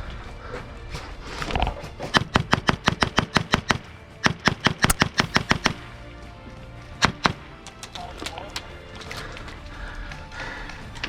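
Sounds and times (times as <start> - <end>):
airsoft rifle shots: 2.1 - 5.9.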